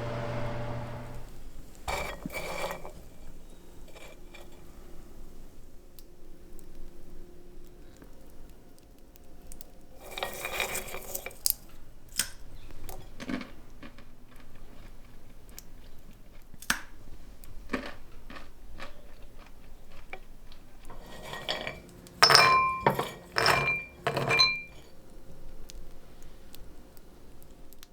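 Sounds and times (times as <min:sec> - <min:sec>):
nuts and dishware clicking: 0:20.9 - 0:24.9.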